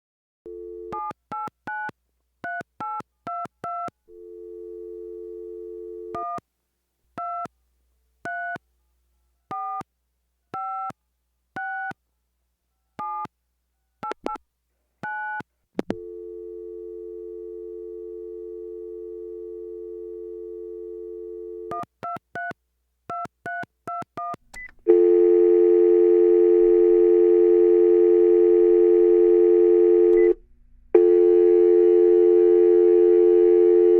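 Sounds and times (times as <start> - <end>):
telephone dial tone: 4.1 - 6.4, 15.9 - 21.8, 24.9 - 30.4, 31.0 - 33.9.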